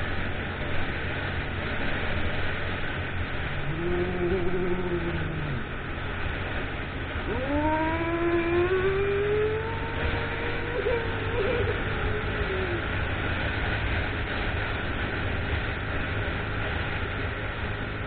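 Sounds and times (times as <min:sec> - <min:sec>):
road rumble: 0:00.0 - 0:18.0
wind: 0:00.0 - 0:18.0
motorcycle engine accelerating: 0:03.3 - 0:13.2.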